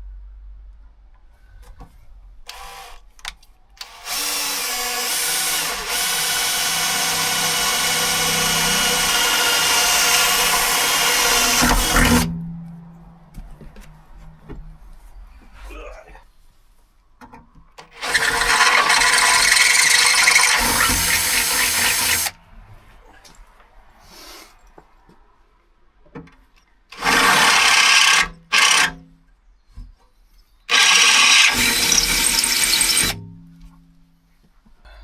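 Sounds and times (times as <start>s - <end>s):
power drill boring: 2.5s - 3.0s, 3.8s - 12.3s, 17.9s - 22.4s, 27.0s - 28.9s, 30.7s - 33.2s.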